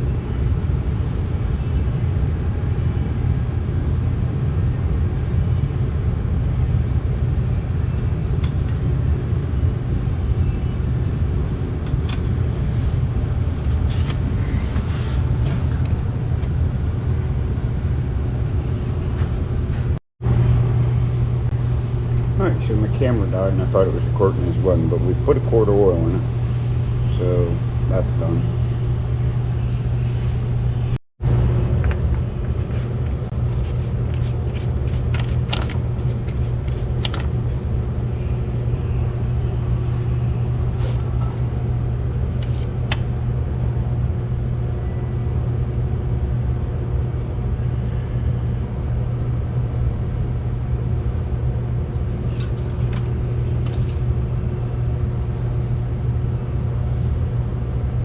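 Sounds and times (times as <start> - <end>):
golf cart engine droning: 20.3 - 42.2.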